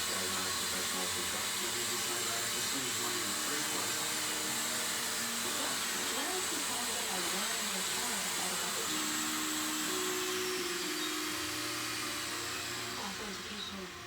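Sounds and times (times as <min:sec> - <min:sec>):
faint voices: 0:00.0 - 0:10.3, 0:11.9 - 0:14.0
toy drone rotors whirring: 0:00.0 - 0:14.0.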